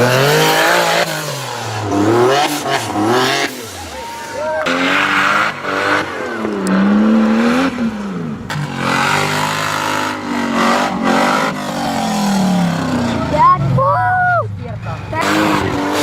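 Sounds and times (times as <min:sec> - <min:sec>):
engine revving hard: 0:00.0 - 0:13.9, 0:14.9 - 0:16.0.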